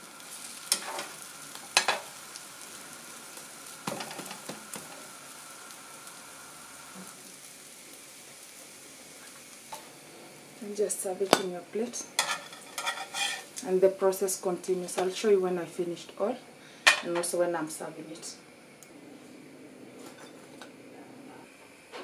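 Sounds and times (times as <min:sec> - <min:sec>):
bread sizzling in a frying pan: 0:00.0 - 0:22.0
metal spatula scraping a pan: 0:12.2 - 0:13.5.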